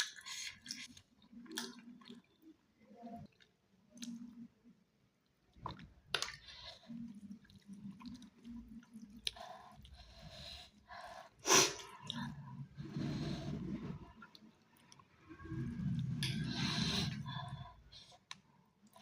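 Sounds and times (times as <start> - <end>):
wet mouth clicks and smacks: 3.4 - 4.4.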